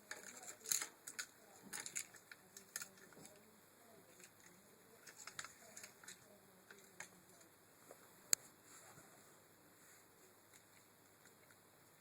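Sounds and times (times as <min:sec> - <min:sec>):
small hard parts clicking: 0:00.0 - 0:03.4, 0:04.1 - 0:07.2.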